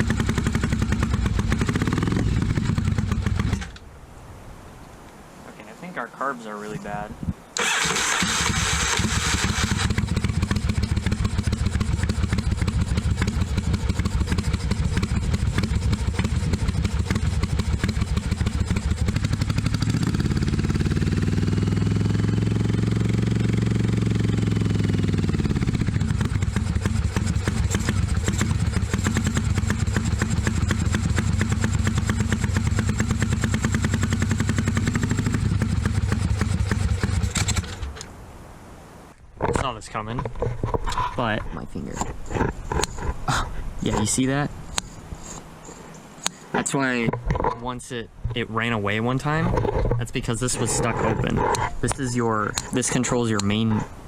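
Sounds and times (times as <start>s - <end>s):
motorcycle engine idling: 0.0s - 3.8s, 7.6s - 38.0s.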